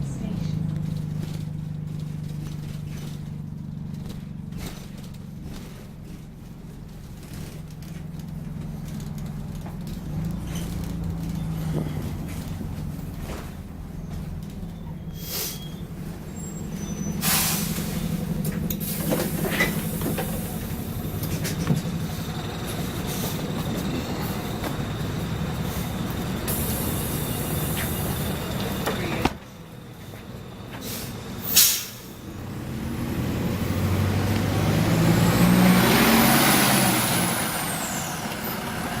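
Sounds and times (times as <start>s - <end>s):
bus diesel engine: 0.0s - 39.0s
air brake hiss: 15.2s - 15.7s, 17.2s - 18.0s, 30.8s - 32.2s.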